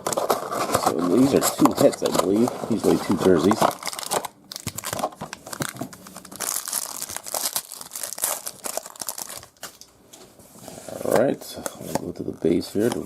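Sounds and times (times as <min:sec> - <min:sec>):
foil wrapper crinkling and tearing: 0:03.5 - 0:09.8.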